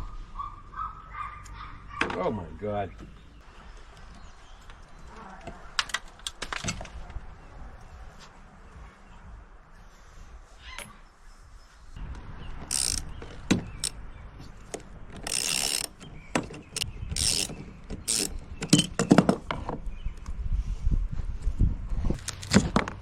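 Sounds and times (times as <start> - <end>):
sharp metal clicks: 12.6 - 14.0, 14.6 - 19.1
ratchet wrench clicking: 12.7 - 13.1, 15.2 - 16.0, 16.8 - 17.5, 18.1 - 18.8.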